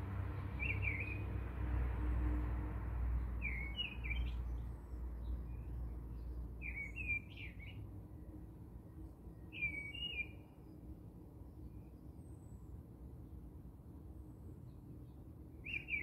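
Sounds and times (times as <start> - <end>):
bird chirping: 0.6 - 1.2, 3.4 - 7.8, 9.4 - 10.4, 15.6 - 16.0.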